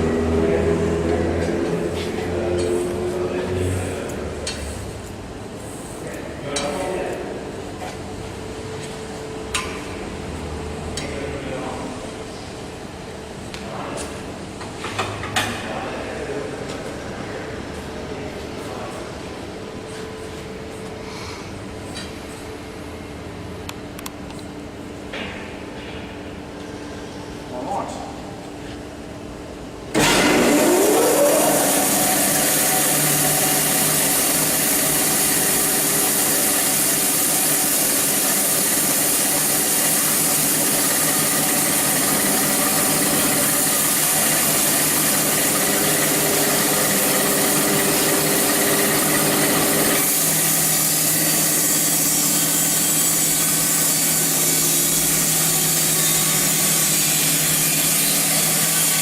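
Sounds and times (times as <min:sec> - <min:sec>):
bandsaw mill sawing through log: 0:30.0 - 0:59.0.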